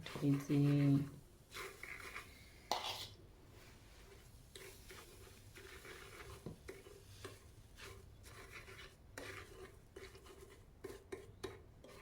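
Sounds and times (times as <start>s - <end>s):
scrubbing and scraping strokes: 4.1s - 12.0s.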